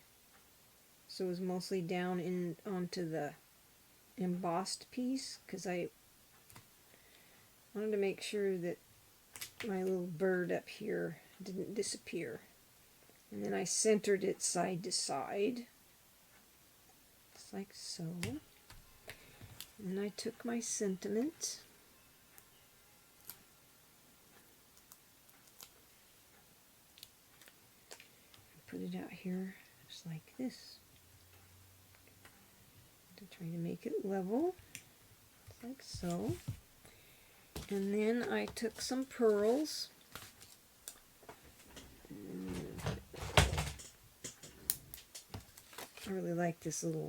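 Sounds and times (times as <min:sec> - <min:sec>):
person humming: 0:42.0 - 0:43.0.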